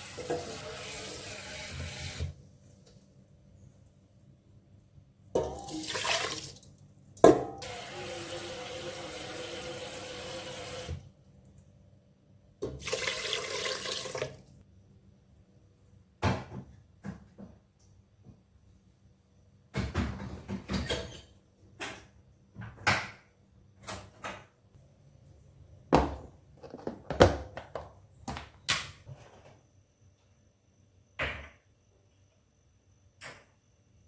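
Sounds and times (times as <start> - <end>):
water tap running into sink: 0.0 - 2.3, 5.5 - 6.6, 7.6 - 11.0, 12.7 - 14.4.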